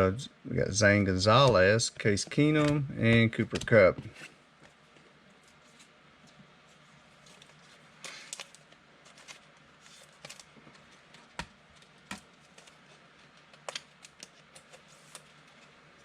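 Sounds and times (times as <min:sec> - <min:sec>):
trading cards clicking and snapping: 0:02.3 - 0:03.8, 0:13.4 - 0:15.3.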